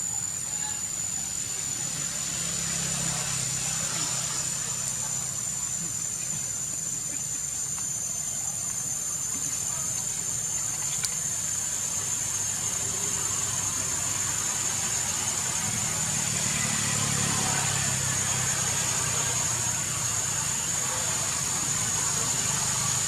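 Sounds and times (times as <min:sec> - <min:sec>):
low mechanical hum: 0:00.0 - 0:23.0
thin high whine: 0:00.0 - 0:23.0.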